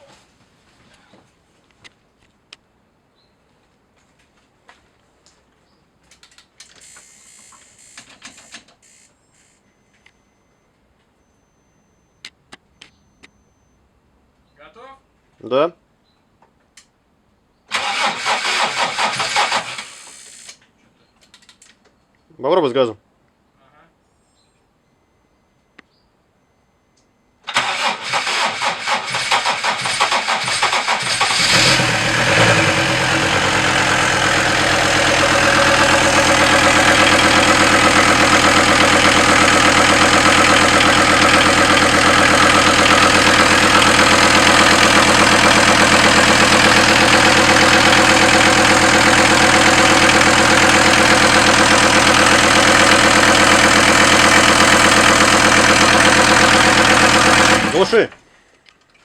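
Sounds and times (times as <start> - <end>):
diesel engine cranking and starting: 17.7 - 20.6, 27.4 - 58.0.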